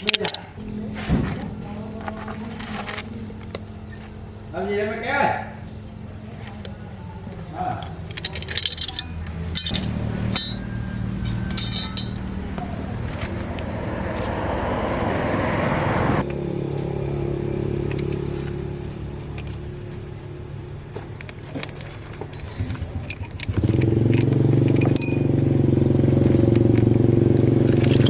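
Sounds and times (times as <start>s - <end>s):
truck engine running: 5.6s - 28.0s
light metallic clinks: 7.8s - 13.3s, 19.3s - 19.7s, 21.1s - 27.0s.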